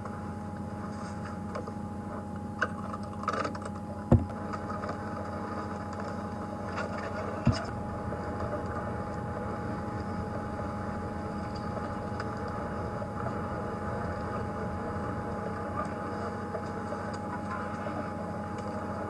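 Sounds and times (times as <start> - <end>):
faint steady whine: 0.0 - 19.0
vehicle engine rumbling: 6.8 - 18.6.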